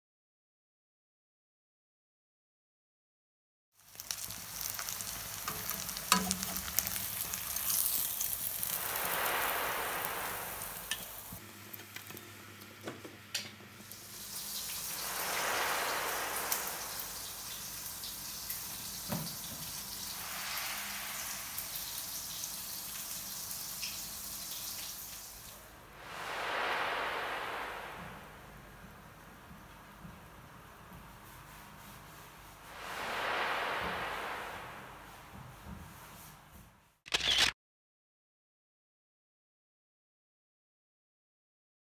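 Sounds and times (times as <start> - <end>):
pork chop sizzling in oil: 3.8 - 11.4, 13.8 - 25.4.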